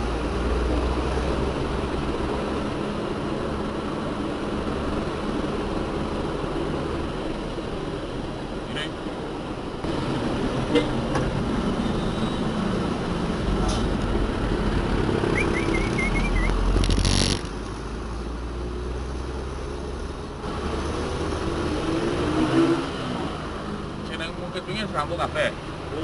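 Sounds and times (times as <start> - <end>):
diesel engine running: 0.0 - 18.4.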